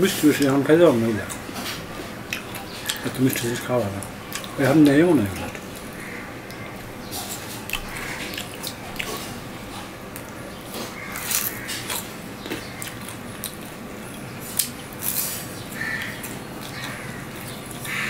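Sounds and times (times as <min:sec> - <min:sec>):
crunchy sweet being chewed: 0:01.2 - 0:18.0.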